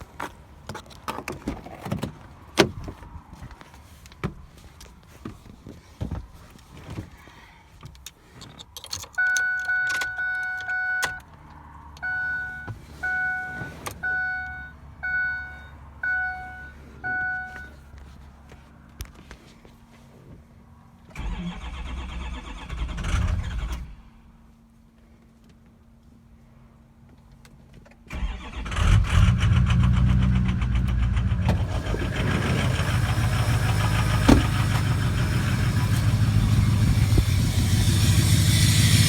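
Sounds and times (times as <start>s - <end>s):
car warning chime: 9.2s - 11.2s, 12.0s - 17.8s
short warning beeps: 12.0s - 17.8s.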